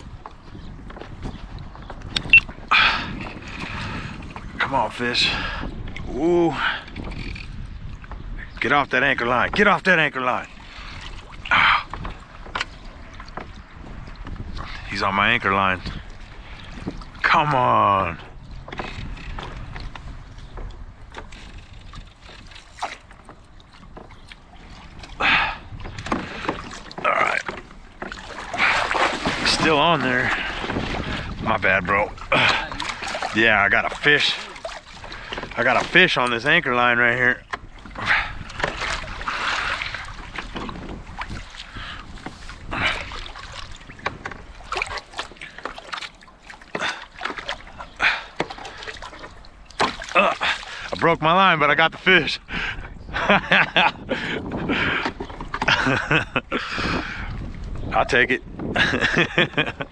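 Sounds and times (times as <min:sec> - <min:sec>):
light water sounds: 0:00.0 - 0:52.9
gear knocking against kayak hull: 0:18.1 - 0:51.0, 0:54.4 - 0:56.3.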